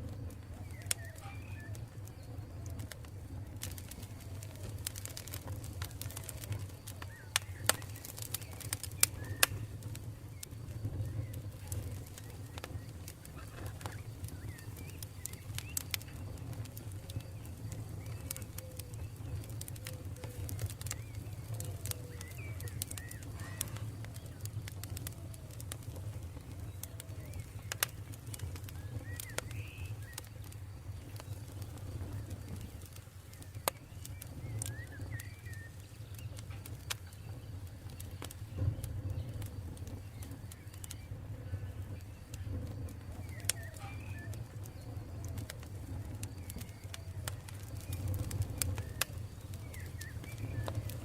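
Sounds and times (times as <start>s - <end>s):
campfire crackling: 0.0s - 51.0s
fire popping: 0.0s - 51.0s
low rumble of fire: 0.0s - 51.0s
birds calling: 3.6s - 38.7s.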